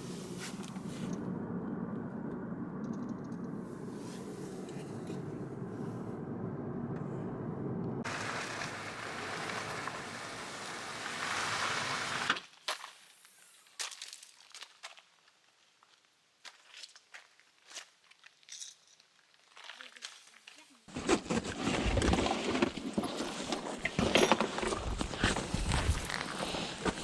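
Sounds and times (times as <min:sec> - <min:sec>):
vehicle engine humming: 0:00.0 - 0:12.3.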